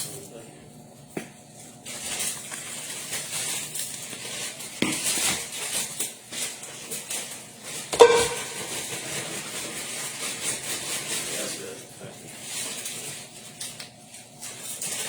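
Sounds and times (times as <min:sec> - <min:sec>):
sharp knock: 0:08.0 - 0:08.7
ringing clink of dish: 0:08.0 - 0:08.9.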